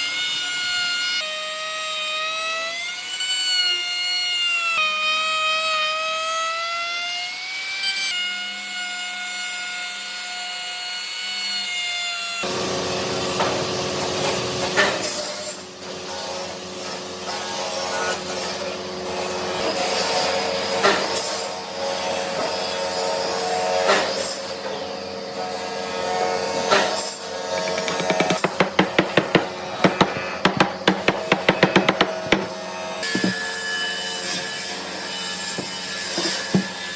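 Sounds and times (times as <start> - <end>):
rough sawing of wood: 27.4 - 33.6, 34.2 - 36.9
sharp knocks: 27.5 - 33.5, 35.6 - 36.8.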